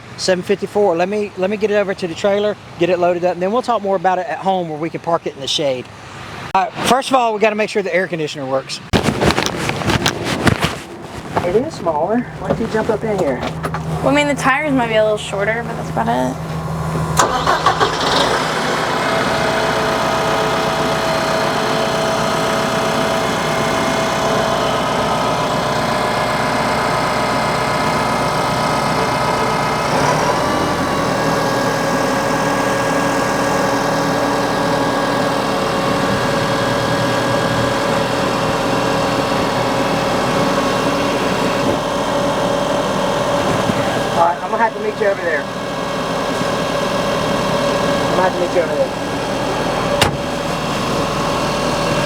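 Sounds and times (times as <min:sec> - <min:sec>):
diesel tractor engine running: 0:10.9 - 0:52.0.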